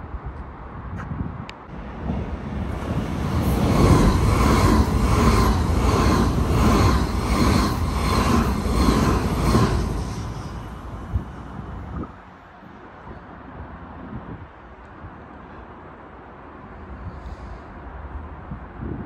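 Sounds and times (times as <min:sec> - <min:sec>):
train passing with pulsing rumble: 0:01.7 - 0:14.8.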